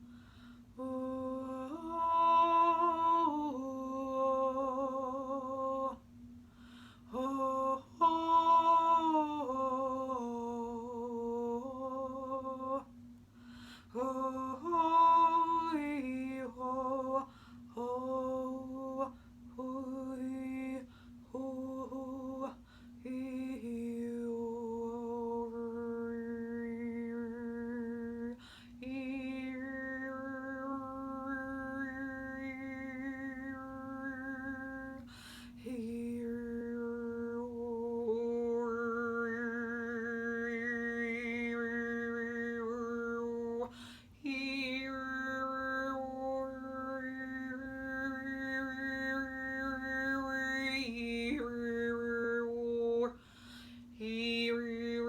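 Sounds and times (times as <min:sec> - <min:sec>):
woman overtone singing: 0:00.8 - 0:06.1, 0:07.1 - 0:12.9, 0:13.9 - 0:53.2, 0:53.9 - 0:55.0.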